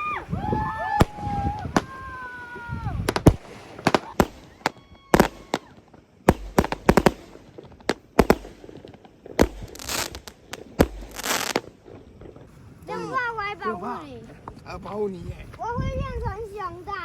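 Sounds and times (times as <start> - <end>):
fireworks hissing crackle: 0.0 - 17.0
fireworks bangs: 0.8 - 12.5.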